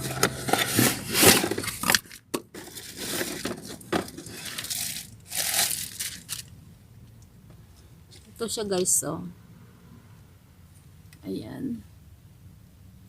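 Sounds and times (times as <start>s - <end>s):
packaging crinkling and rustling: 0.0s - 6.5s.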